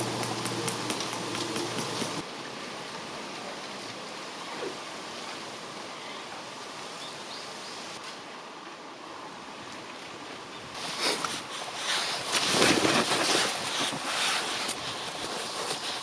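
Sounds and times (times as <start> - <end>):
scattered clicks: 0.0 - 2.2.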